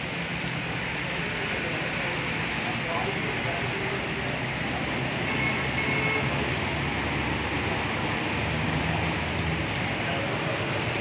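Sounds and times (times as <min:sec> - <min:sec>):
rain on a wet road: 0:00.0 - 0:11.0
traffic wash: 0:00.0 - 0:11.0.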